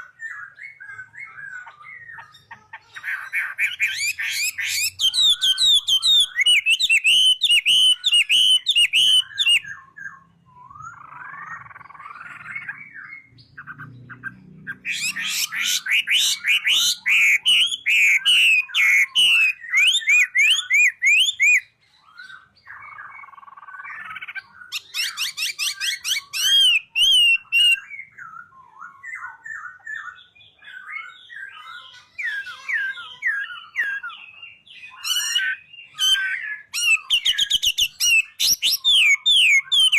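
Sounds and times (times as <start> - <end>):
scratchy bird chattering: 0.0 - 9.7, 10.9 - 28.0, 31.6 - 39.9
songbird chirping and whistling: 0.0 - 39.9.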